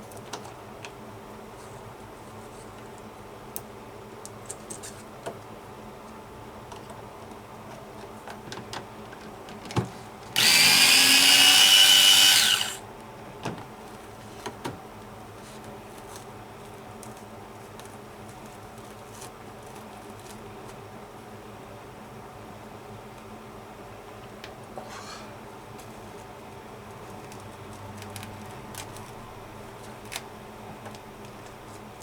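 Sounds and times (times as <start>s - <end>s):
electric screwdriver running: 10.4s - 12.8s.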